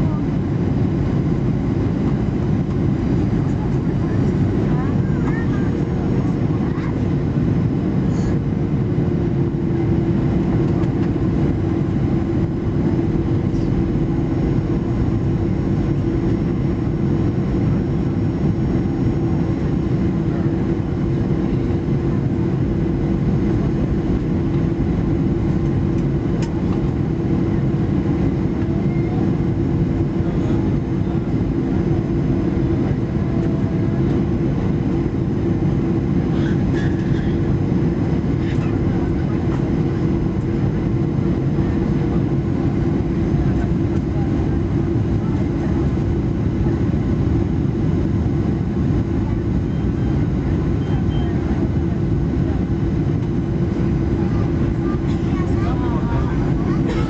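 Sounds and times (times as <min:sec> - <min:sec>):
constant low hum: 0:00.0 - 0:57.0
jet engines droning: 0:00.0 - 0:57.0.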